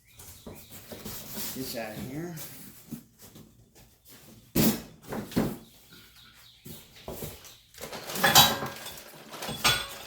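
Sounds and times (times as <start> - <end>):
packaging rustling and scraping: 6.6 - 10.0.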